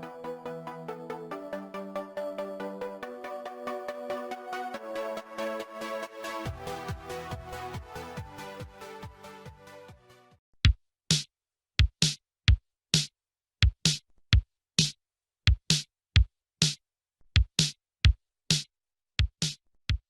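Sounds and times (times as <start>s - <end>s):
electronic music drum-machine beat: 6.5s - 10.1s.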